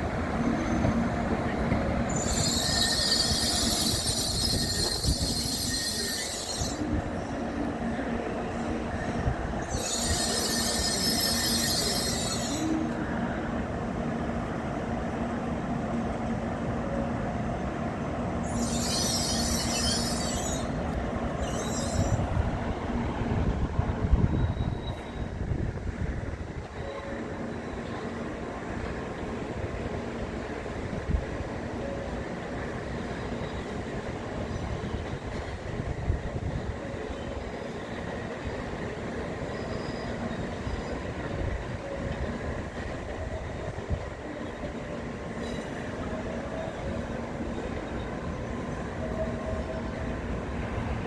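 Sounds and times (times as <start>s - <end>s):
train rumble and hum: 0.0s - 51.0s
high hissing squeals: 2.1s - 7.0s, 9.6s - 12.9s, 18.4s - 22.5s.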